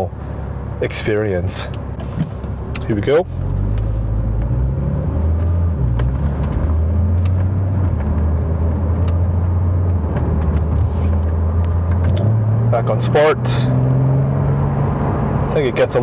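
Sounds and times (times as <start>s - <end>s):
car engine deep steady drone: 0.0s - 16.0s.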